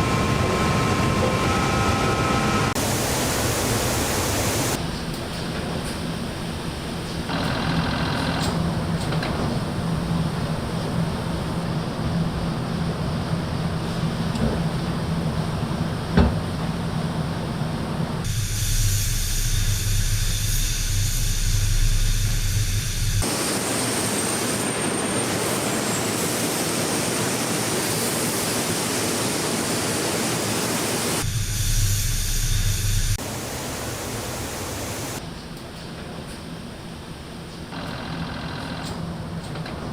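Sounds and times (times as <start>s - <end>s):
low machine hum: 0.0s - 4.8s
steady hiss: 2.8s - 4.8s, 18.3s - 35.3s.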